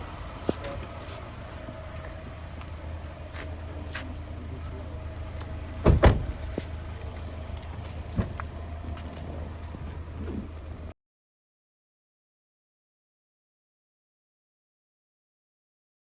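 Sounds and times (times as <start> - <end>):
low hum of a car: 0.0 - 11.0
car door slamming: 5.7 - 6.8, 8.0 - 8.5.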